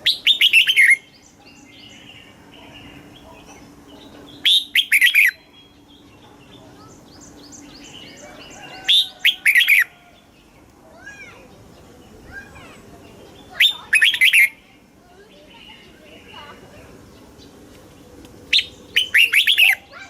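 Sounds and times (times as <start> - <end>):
bird singing whistled phrases: 0.0 - 2.1, 4.4 - 5.8, 13.4 - 14.6, 18.5 - 20.0
faint bird chirps: 0.0 - 17.6, 18.5 - 20.0.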